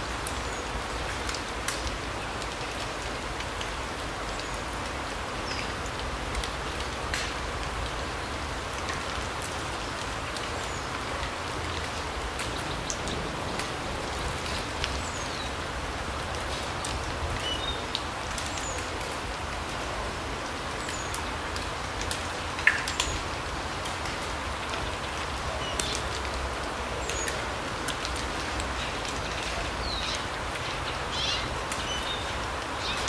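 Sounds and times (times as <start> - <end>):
songbirds chirping: 28.6 - 33.0.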